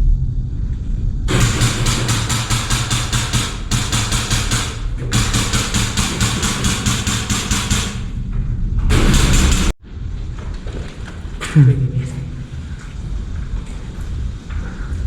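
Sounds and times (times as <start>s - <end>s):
wind rumble on microphone: 0.0s - 1.4s, 8.1s - 15.0s
airsoft gun firing full auto: 1.3s - 8.1s, 8.9s - 9.7s.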